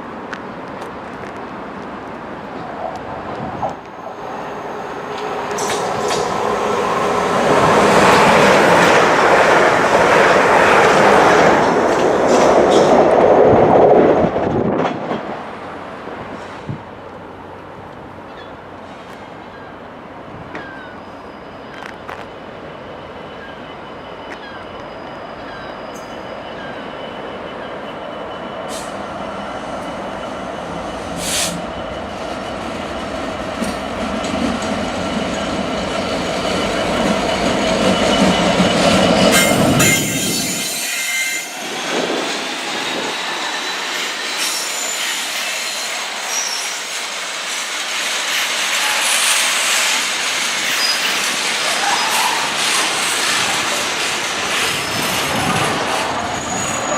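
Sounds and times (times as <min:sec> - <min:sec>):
train rumbling past: 0:00.0 - 0:56.9
train wheel squeal: 0:04.1 - 0:09.2, 0:20.4 - 0:56.9.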